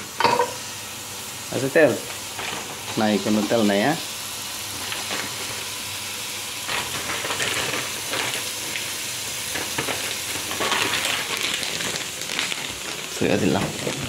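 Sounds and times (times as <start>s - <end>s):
food sizzling in a wok: 0.0s - 14.0s
crackles and pops: 6.6s - 14.0s.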